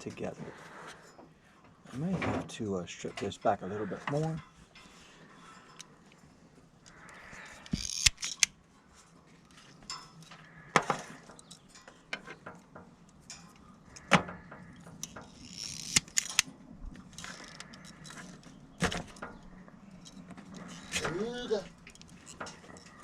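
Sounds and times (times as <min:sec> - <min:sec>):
wires rustling: 0:00.0 - 0:23.0
wire strippers clicking and snapping: 0:06.8 - 0:08.6, 0:09.4 - 0:23.0.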